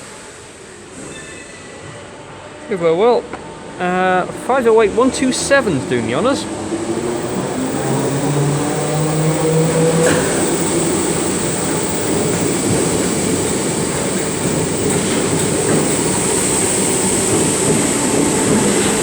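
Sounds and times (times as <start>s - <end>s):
train rumbling past: 0.0s - 19.0s
electric train motor tone rising: 6.5s - 19.0s.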